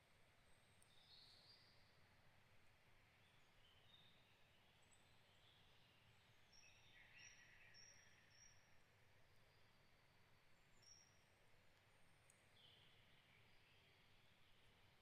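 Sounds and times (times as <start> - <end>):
background hiss: 0.0 - 15.0
faint birdsong: 0.0 - 15.0.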